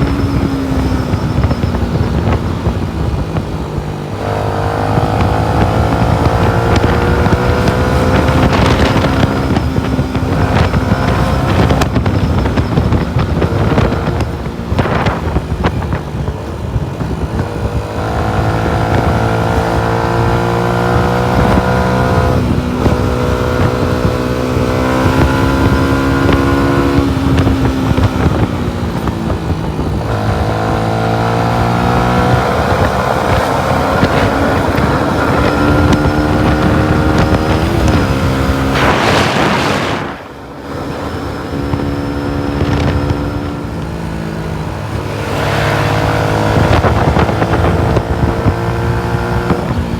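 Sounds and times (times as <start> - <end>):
motorcycle engine revving through gears: 0.0 - 49.9
rush of noise: 29.2 - 49.9.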